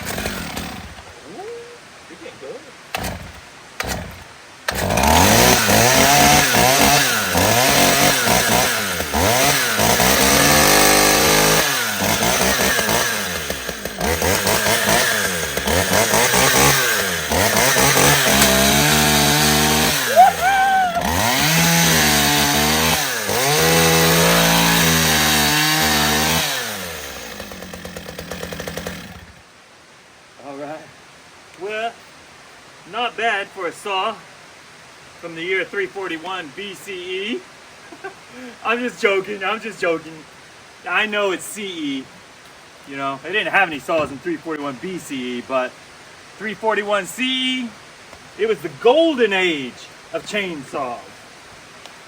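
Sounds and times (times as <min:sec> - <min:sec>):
chainsaw engine revving: 0:00.0 - 0:01.2, 0:02.9 - 0:29.5.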